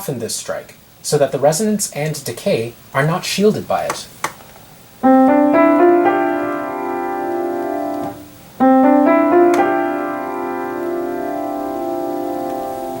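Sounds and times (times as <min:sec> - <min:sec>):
piano accompaniment: 0:05.0 - 0:13.0.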